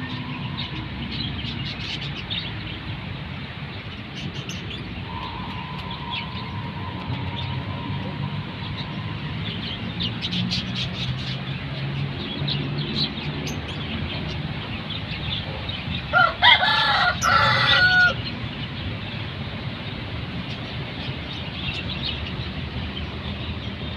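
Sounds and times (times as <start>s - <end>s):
rooster crowing: 16.1s - 18.2s.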